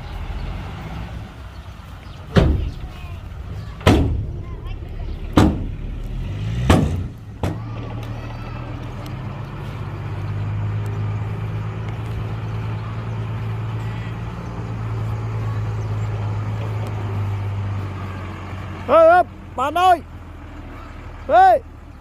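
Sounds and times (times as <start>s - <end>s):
diesel engine running: 0.0s - 22.0s
sharp bangs: 2.3s - 7.8s.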